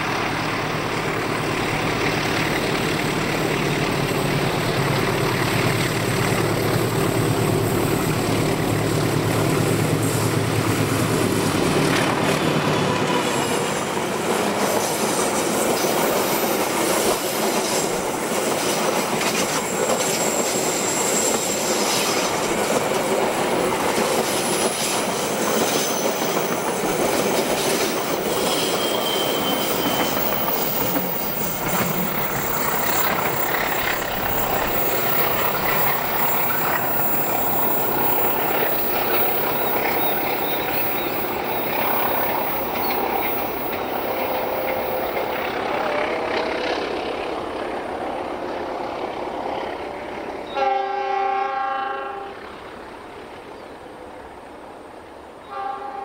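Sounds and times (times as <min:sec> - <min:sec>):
train wheels rumbling on rails: 0:00.0 - 0:51.4
high wheel squeal: 0:14.6 - 0:18.1, 0:19.2 - 0:22.8, 0:24.4 - 0:45.8
wheels clacking over rail joints: 0:21.3 - 0:47.3.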